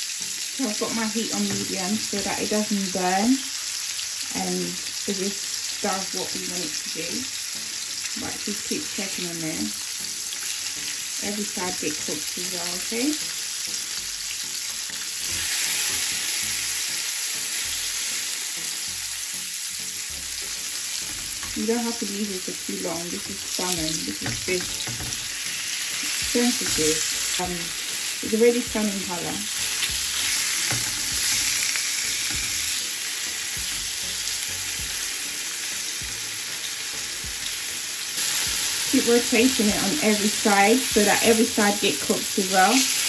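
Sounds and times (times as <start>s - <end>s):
fish sizzling in a pan: 0.0s - 43.0s
tongs knocking in pan: 20.9s - 21.7s, 23.2s - 25.5s, 29.8s - 31.6s.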